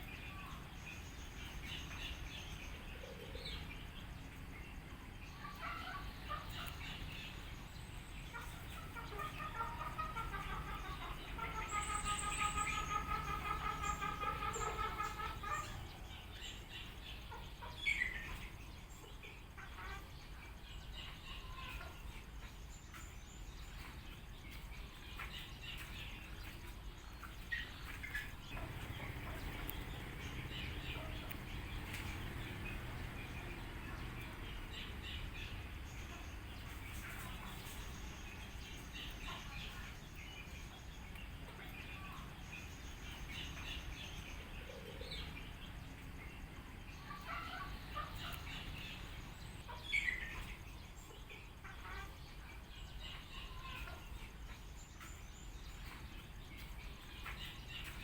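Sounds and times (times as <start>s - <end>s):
birds calling and chirping: 0.0s - 58.0s.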